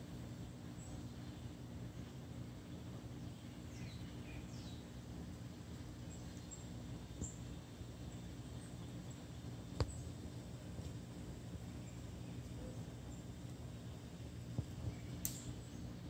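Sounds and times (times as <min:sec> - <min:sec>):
steady low hum: 0:00.0 - 0:16.0
sharp click: 0:15.2 - 0:15.5.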